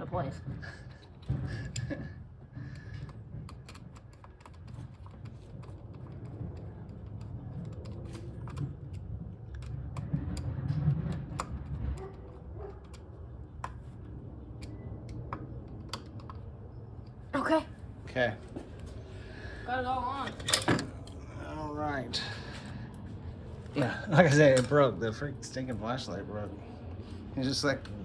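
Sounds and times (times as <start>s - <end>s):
tools clicking and tapping: 0.9s - 13.9s.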